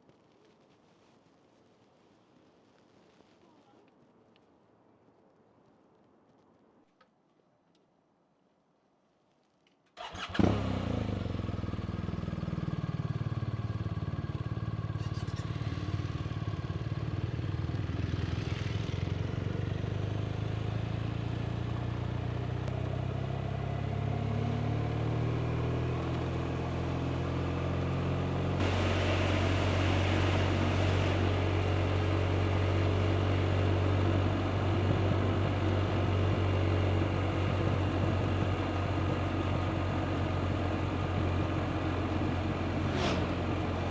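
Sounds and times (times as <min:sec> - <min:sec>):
motorcycle engine running: 0:10.0 - 0:43.9.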